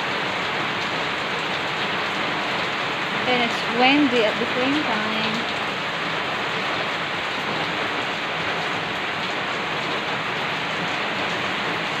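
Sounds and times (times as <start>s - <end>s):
heavy rain on pavement: 0.0s - 12.0s.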